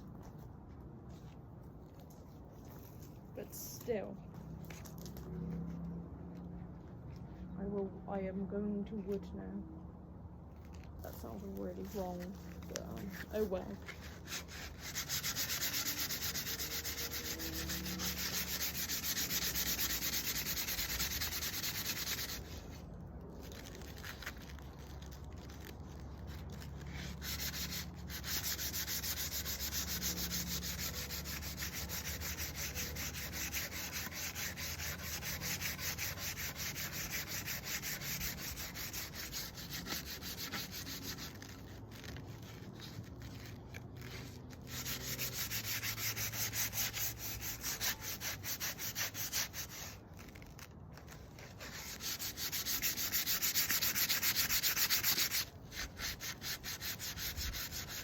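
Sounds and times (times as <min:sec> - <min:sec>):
sandpaper rubbing on wood: 0:12.9 - 0:22.8, 0:23.5 - 0:58.0.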